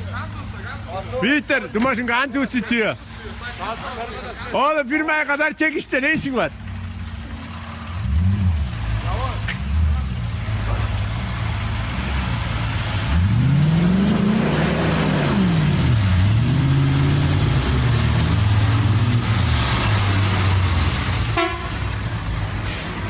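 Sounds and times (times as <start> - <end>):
vehicle engine revving: 6.6 - 23.0.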